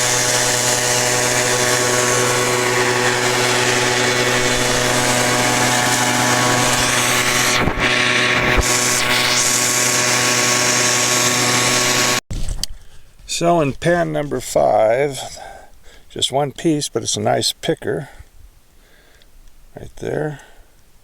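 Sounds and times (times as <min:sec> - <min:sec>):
small gasoline engine running: 0:00.0 - 0:12.2
low thumps: 0:00.2 - 0:10.5.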